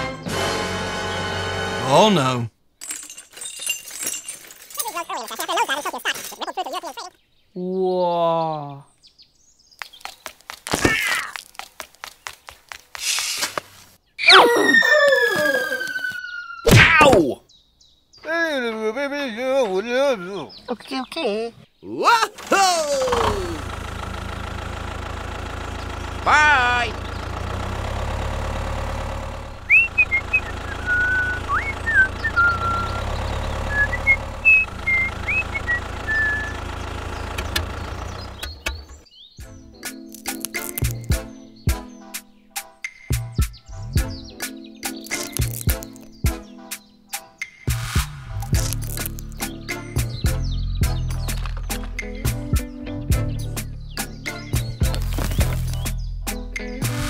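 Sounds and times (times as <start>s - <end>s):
tractor engine running: 0.0s - 2.1s, 22.4s - 39.1s, 40.0s - 41.3s, 44.9s - 46.2s, 48.2s - 57.0s
short squeaky tone: 14.2s - 16.7s
voice crying whoa: 14.2s - 17.2s, 22.5s - 23.6s
person whistling a tune: 29.7s - 33.0s
sharp clicks and cracks: 40.0s - 41.2s, 44.9s - 46.1s, 48.4s - 49.5s, 54.8s - 56.0s.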